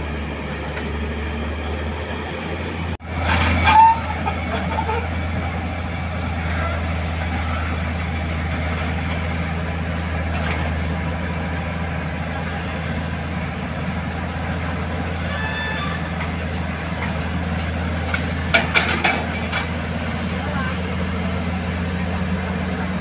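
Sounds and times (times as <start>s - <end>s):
excavator diesel engine humming: 0.0s - 23.0s
brief squeal: 3.2s - 5.3s, 15.3s - 16.1s.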